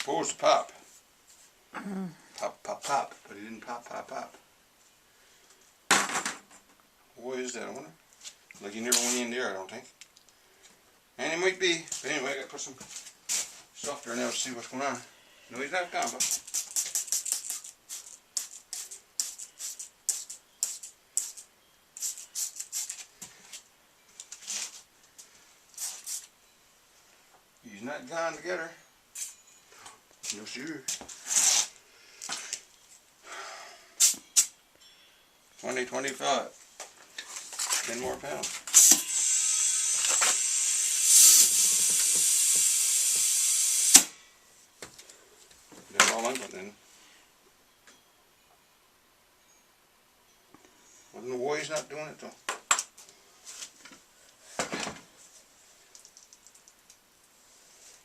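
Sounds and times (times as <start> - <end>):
compressed air hissing: 38.8 - 44.2.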